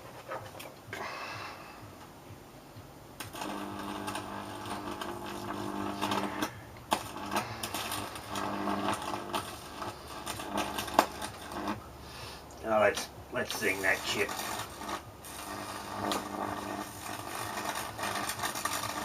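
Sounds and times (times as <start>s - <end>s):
sharp electrical snap: 3.2s - 11.8s, 13.0s - 19.0s
transformer mains buzz: 3.2s - 11.9s, 12.6s - 19.0s
crackling sparks: 3.2s - 12.0s, 12.6s - 19.0s.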